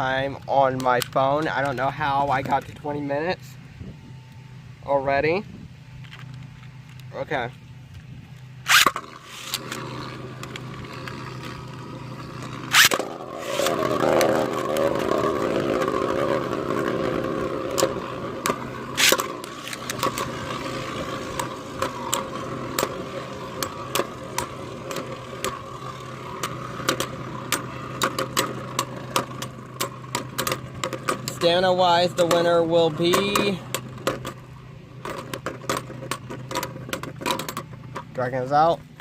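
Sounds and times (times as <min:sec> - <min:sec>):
spinning tops scraping plastic floor: 0:08.7 - 0:38.1.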